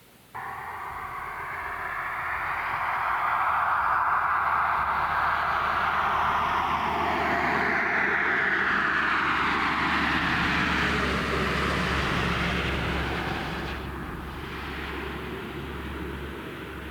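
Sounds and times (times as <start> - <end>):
steady low hum: 0.0 - 16.9
vehicle passing on highway: 0.4 - 16.9.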